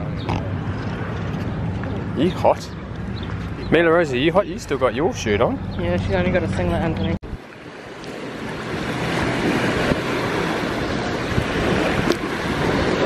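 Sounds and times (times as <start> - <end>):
rushing water: 0.0 - 13.0
wind buffeting microphone: 0.0 - 13.0.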